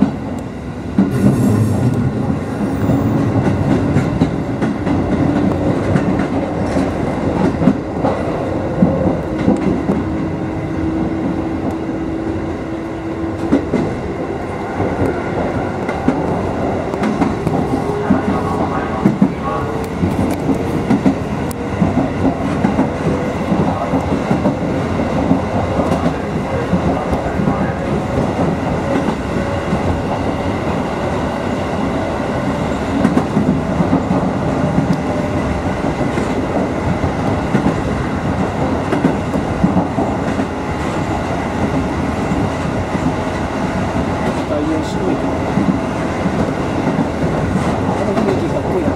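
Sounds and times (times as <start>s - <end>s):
clickety-clack over rail joints: 0.0s - 11.9s, 12.6s - 14.2s, 14.8s - 48.9s
train wheels rumbling on rail: 0.0s - 48.9s.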